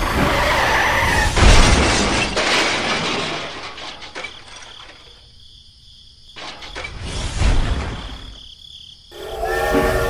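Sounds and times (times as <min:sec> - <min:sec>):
toy crash smash: 0:01.2 - 0:04.9
high squeal: 0:09.1 - 0:10.0.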